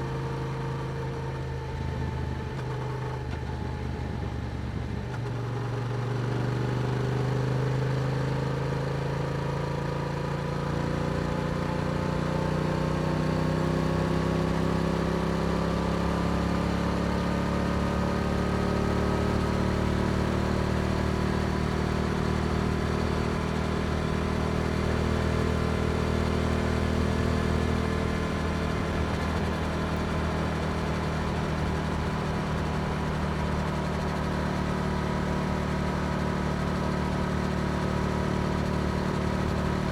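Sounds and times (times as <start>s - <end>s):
motorcycle engine accelerating: 12.7s - 39.9s.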